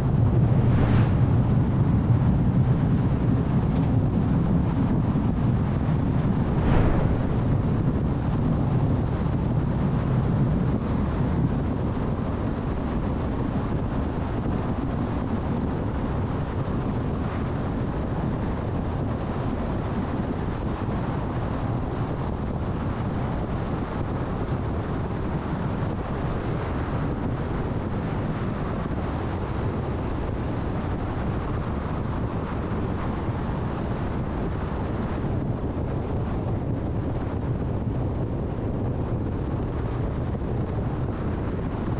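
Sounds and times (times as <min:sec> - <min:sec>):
tyre and wind noise: 0:00.0 - 0:12.3.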